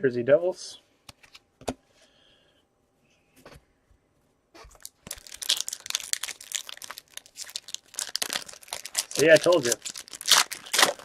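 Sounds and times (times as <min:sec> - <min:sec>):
foil wrapper tearing: 0:04.8 - 0:11.0.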